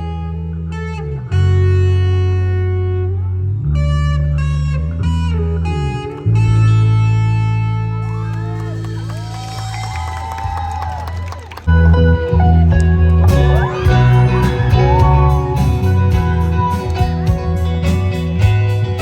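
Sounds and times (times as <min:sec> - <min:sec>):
rock band playing: 0:07.9 - 0:19.0
audience shouting and cheering: 0:08.0 - 0:18.1.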